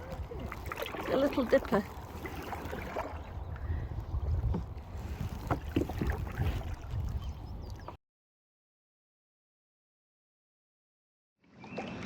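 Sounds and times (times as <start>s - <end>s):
paddle splashing in water: 0.0s - 8.0s
wind rumble on microphone: 0.0s - 8.0s.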